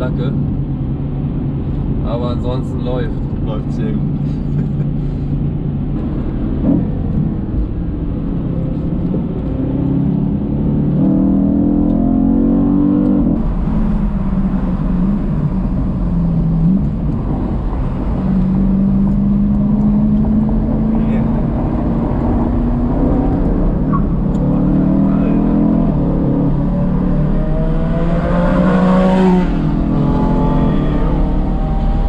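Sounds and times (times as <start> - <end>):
road and tyre rumble: 0.0 - 32.0
car engine accelerating: 3.1 - 32.0.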